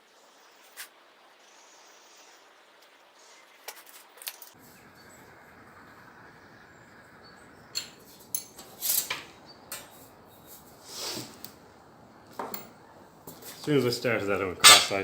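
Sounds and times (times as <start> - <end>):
low steady hiss: 0.0 - 15.0
sheet metal and tools clinking: 7.8 - 10.0, 14.6 - 15.0.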